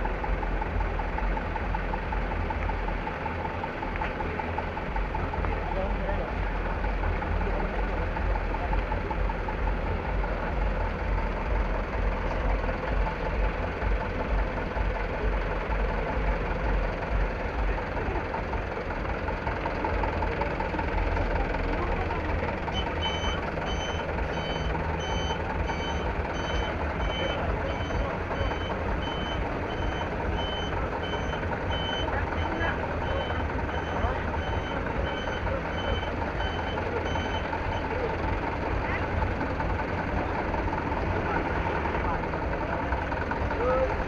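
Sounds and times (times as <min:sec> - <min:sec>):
truck engine rumbling: 0:00.0 - 0:44.0
reversing alarm beeping: 0:22.7 - 0:38.0.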